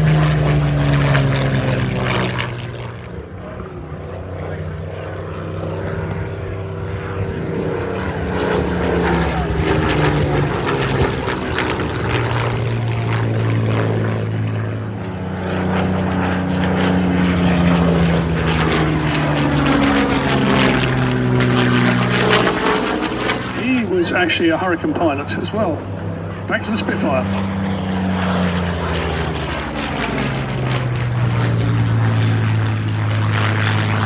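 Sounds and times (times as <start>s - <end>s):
piston aircraft engines droning: 0.0s - 34.0s.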